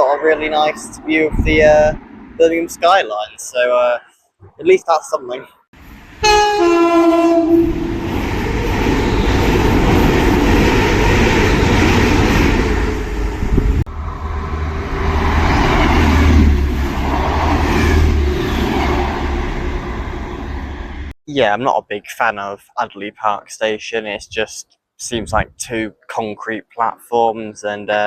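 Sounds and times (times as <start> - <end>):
train passing at speed: 0.2 - 2.5, 5.8 - 21.1
train horn: 6.2 - 8.0.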